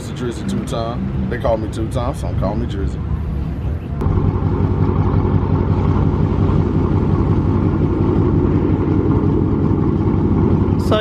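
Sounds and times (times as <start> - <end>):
car engine idling: 3.0 - 11.0.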